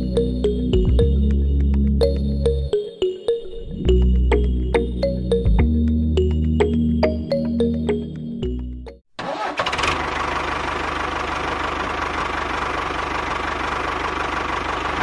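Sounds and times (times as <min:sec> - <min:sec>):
background music: 0:00.0 - 0:09.0
small engine running: 0:09.3 - 0:15.0.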